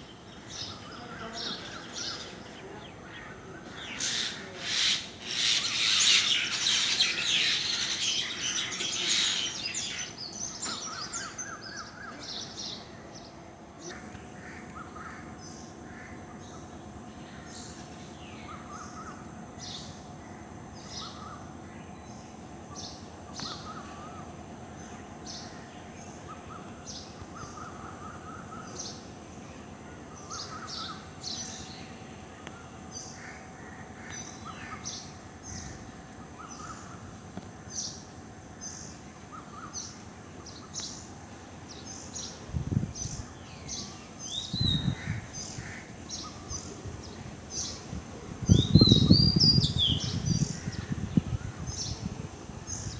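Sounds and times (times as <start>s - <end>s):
harsh low bird calls: 0.0s - 13.0s, 41.7s - 52.9s
birds chirping: 0.0s - 19.9s, 37.7s - 52.9s.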